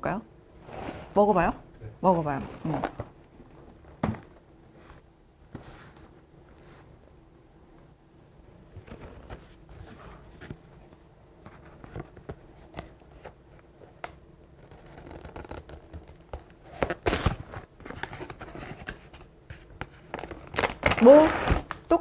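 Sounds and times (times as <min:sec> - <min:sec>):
cardboard box tearing: 0:16.7 - 0:17.5.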